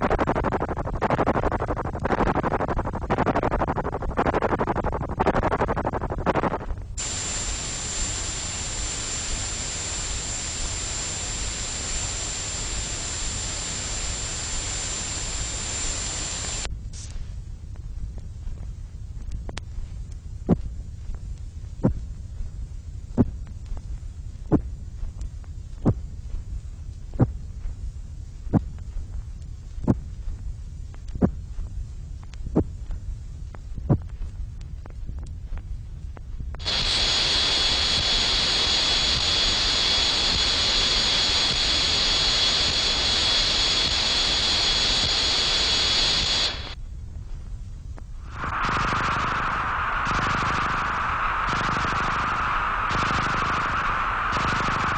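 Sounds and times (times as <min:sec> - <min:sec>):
low rumbling hum: 0:00.0 - 0:54.9
loud high hiss: 0:07.0 - 0:17.1, 0:36.6 - 0:46.8, 0:48.2 - 0:54.9
faint tick: 0:17.1 - 0:22.0
high whistling tone: 0:48.3 - 0:54.9.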